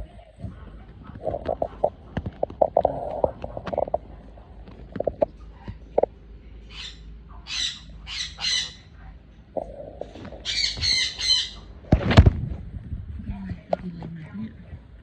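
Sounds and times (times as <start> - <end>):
parrot squawking: 6.7 - 9.0, 10.3 - 11.7.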